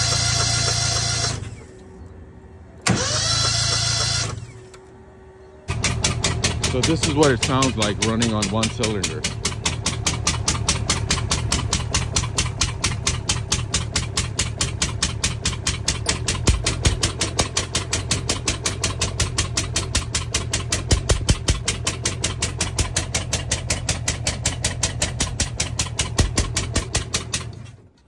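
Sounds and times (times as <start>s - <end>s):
small engine running lumpily: 0.0s - 2.1s, 2.8s - 4.9s, 5.7s - 28.0s
engine knocks: 5.7s - 28.0s.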